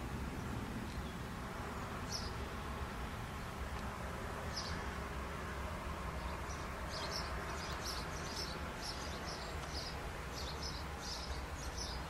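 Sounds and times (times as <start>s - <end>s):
low outdoor rumble: 0.0s - 12.0s
bird chirping: 0.8s - 3.6s, 4.4s - 5.0s, 6.1s - 12.0s.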